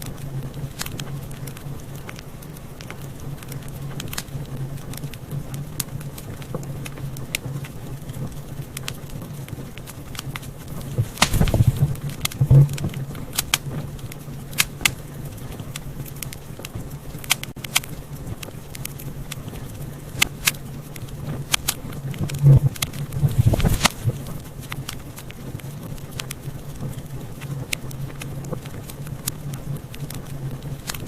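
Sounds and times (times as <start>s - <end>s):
steady low hum: 0.0s - 31.0s
wood fire crackling and popping: 0.0s - 31.0s
low rush: 10.8s - 12.0s, 23.0s - 24.4s.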